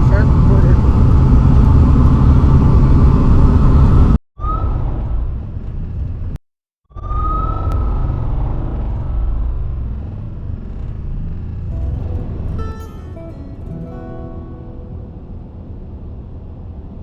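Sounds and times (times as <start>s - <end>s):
rising high whine: 11.7s - 17.0s.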